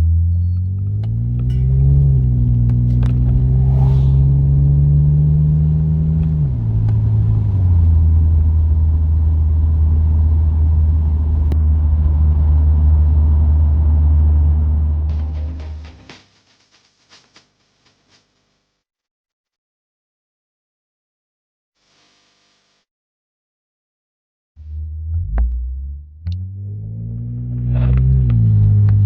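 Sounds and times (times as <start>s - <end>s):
car engine from inside car: 0.0s - 15.2s, 24.6s - 29.0s.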